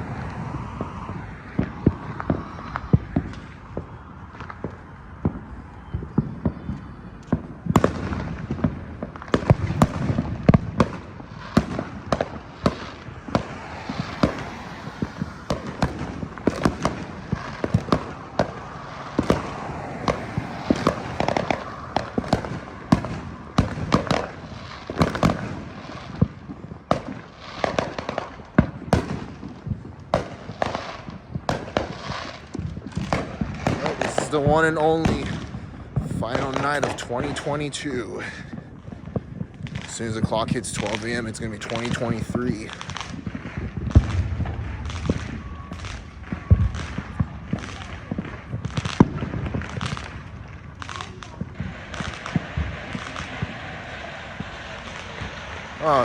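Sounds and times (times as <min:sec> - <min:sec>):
fireworks bangs and pops: 0:00.0 - 0:56.0
low rumble: 0:42.8 - 0:51.8.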